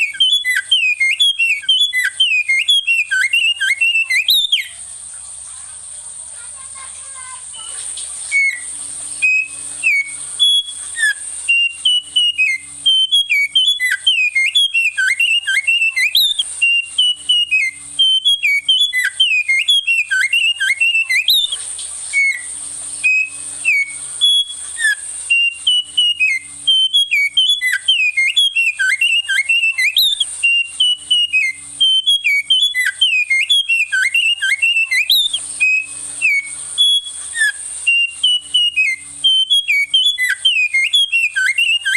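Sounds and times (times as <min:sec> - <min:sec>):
songbird fast whistled song: 0:00.0 - 0:05.4, 0:07.0 - 0:41.9
thin steady high tone: 0:00.0 - 0:41.9.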